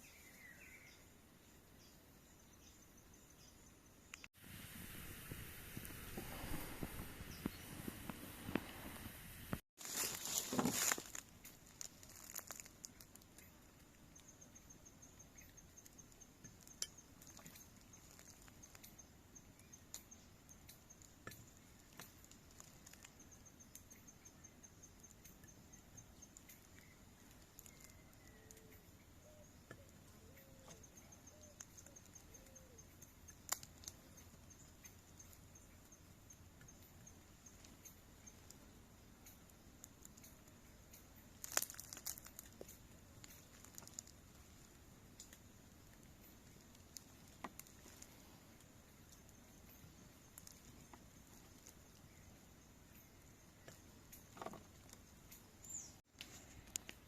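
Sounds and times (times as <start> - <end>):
insect trilling: 10.0 - 48.3
small clicks and knocks: 53.6 - 55.5.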